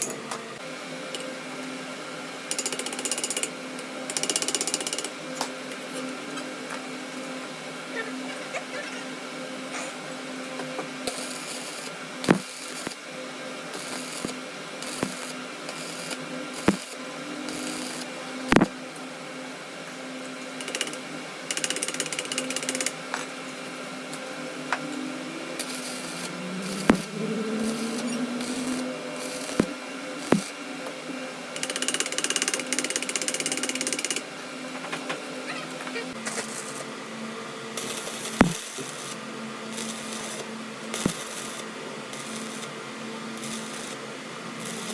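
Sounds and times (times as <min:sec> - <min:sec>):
machine humming: 0:24.3 - 0:30.7
rising motor whine: 0:24.6 - 0:30.4.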